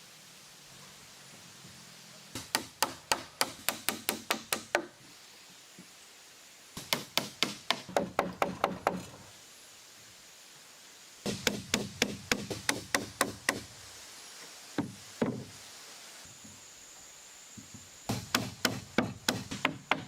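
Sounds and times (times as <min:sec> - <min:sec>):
hammer driving nails into wood: 0:02.4 - 0:04.9.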